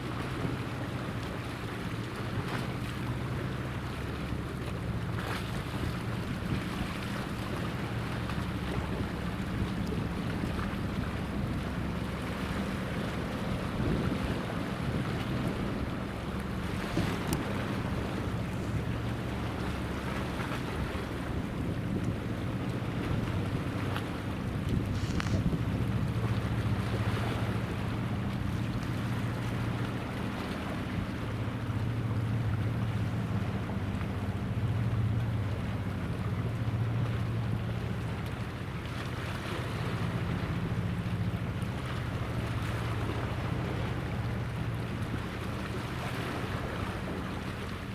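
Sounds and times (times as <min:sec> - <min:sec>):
boat engine humming: 0:00.0 - 0:47.9
water wash: 0:00.0 - 0:47.9
wind: 0:00.0 - 0:47.9
wind on microphone: 0:13.4 - 0:19.0, 0:20.7 - 0:27.6.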